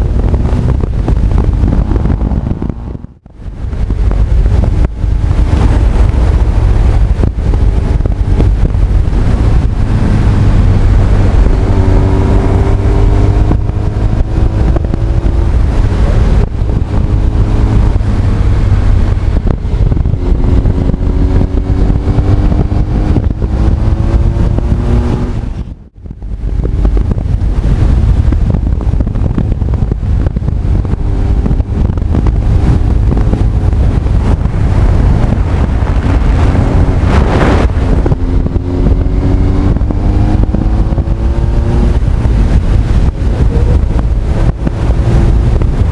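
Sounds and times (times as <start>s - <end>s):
motorcycle engine accelerating: 0.0s - 45.9s
wind buffeting on microphone: 0.0s - 45.9s.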